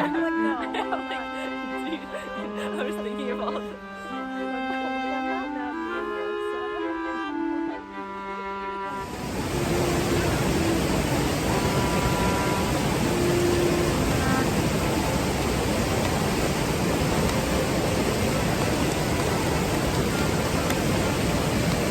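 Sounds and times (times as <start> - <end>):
river water rushing: 0.0 - 3.5, 8.9 - 21.9.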